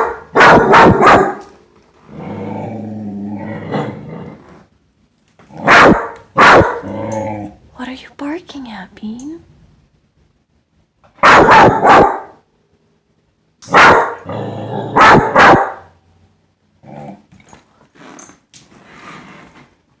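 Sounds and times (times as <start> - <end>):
dog barking: 0.0 - 1.6, 5.6 - 6.9, 11.2 - 12.4, 13.7 - 14.3, 15.0 - 16.0
dog growling: 2.0 - 4.7, 6.6 - 7.7, 14.2 - 15.4, 16.8 - 17.3
dog grumbling: 2.1 - 4.7, 6.7 - 7.7, 14.2 - 15.1, 16.8 - 17.3.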